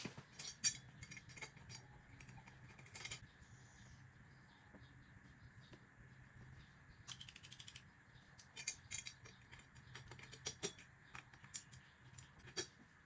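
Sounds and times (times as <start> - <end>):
small metal clicks and taps: 8.4 - 12.8.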